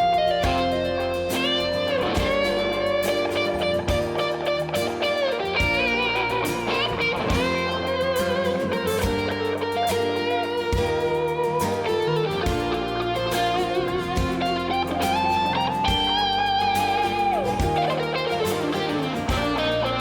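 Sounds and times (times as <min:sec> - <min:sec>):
electric guitar solo: 0:00.0 - 0:20.0
live band playing: 0:00.0 - 0:20.0.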